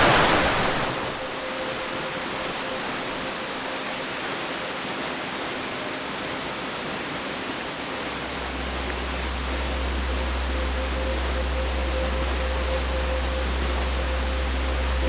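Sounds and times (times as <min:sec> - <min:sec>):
rushing water: 0:00.0 - 0:15.0
low hum: 0:08.2 - 0:15.0.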